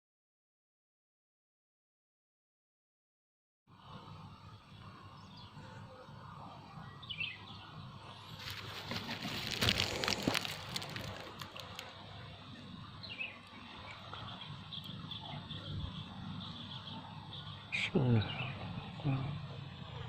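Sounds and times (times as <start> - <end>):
rustling with sharp cracks: 8.4 - 11.9.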